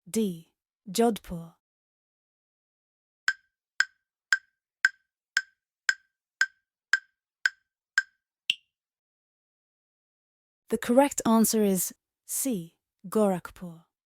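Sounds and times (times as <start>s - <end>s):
wood-block-like timer ticks: 3.3s - 8.6s.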